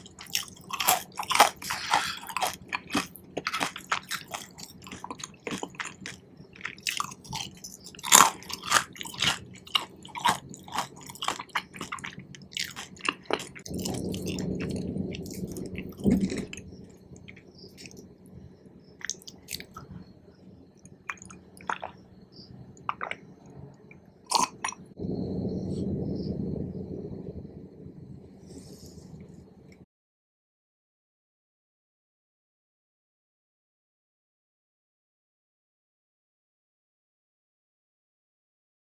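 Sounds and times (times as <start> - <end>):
close-miked chewing: 0.0 - 18.0, 19.0 - 20.1, 20.8 - 22.1, 22.7 - 25.0
low steady background noise: 0.0 - 29.8.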